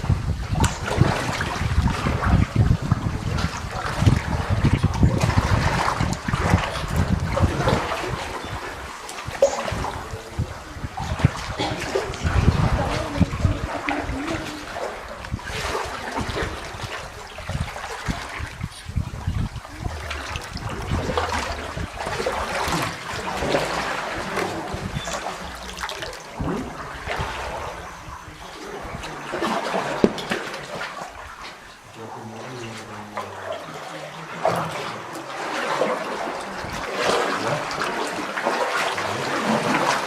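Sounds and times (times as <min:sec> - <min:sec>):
paddles splashing water: 0:00.0 - 0:40.0.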